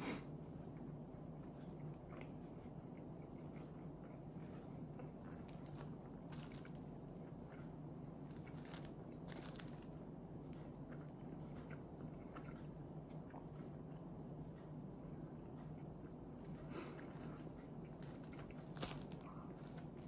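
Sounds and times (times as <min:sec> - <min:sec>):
low steady hum: 0:00.0 - 0:20.0
chewing with crackly clicks: 0:00.4 - 0:20.0.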